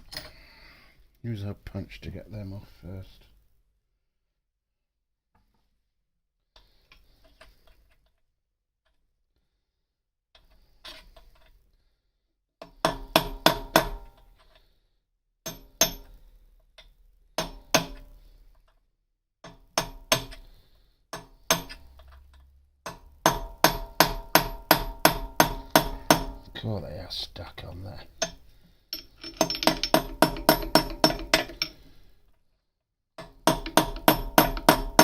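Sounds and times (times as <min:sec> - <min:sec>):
hammer striking steel punch: 0:22.9 - 0:26.4.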